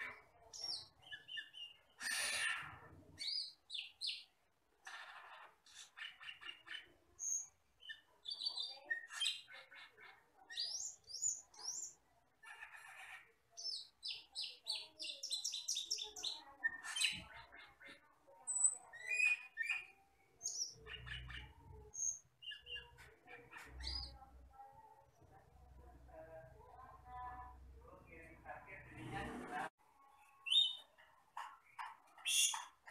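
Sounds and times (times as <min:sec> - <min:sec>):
starling singing chirps and whistles: 0:00.6 - 0:02.5, 0:13.6 - 0:17.3, 0:18.5 - 0:22.9, 0:30.4 - 0:30.9.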